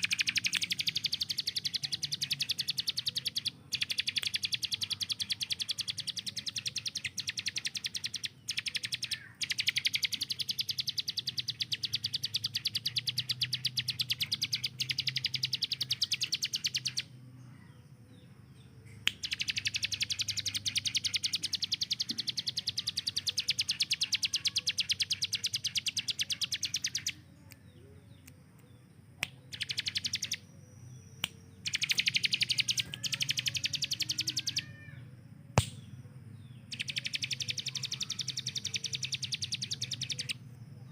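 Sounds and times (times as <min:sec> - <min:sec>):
songbird rapid repeated high notes: 0:00.0 - 0:17.0, 0:29.5 - 0:30.4, 0:31.6 - 0:34.6, 0:36.7 - 0:40.4
faint bird chirps: 0:00.0 - 0:40.9.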